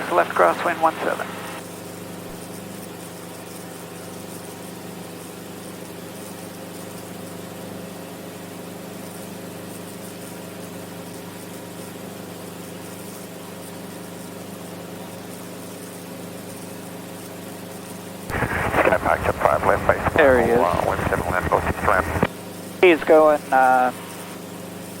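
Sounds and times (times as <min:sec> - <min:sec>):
helicopter engine and rotors droning: 0:00.0 - 0:01.6, 0:18.3 - 0:24.2.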